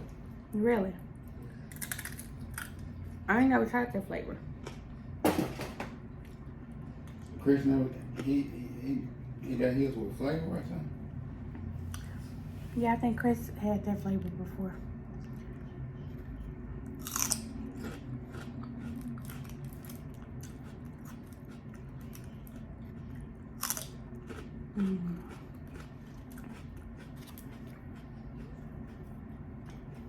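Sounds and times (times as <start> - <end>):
crunchy chewing and biting: 1.6 - 2.9, 16.2 - 30.0.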